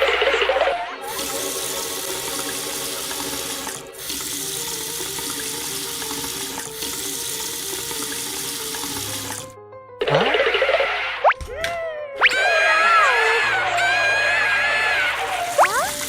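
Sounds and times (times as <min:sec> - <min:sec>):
cartoon tap water running: 0:00.0 - 0:16.0
soft background music: 0:03.9 - 0:16.0.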